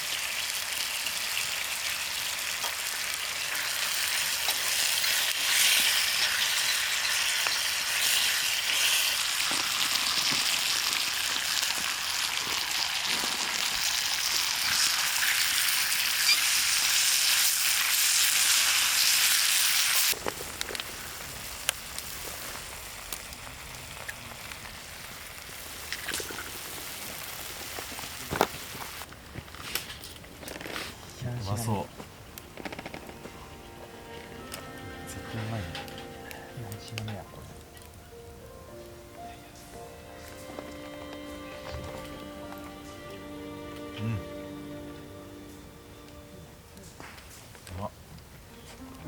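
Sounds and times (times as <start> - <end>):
food sizzling in a hot pan: 0.0 - 29.1.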